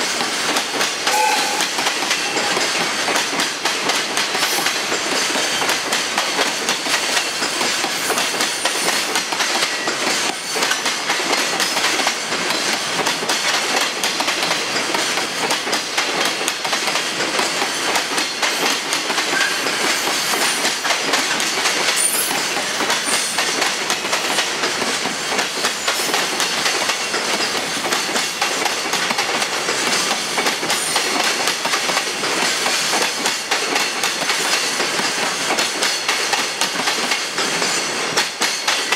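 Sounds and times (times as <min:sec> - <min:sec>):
freight train rolling past: 0:00.0 - 0:38.9
wheels clacking over rail joints: 0:00.0 - 0:38.9.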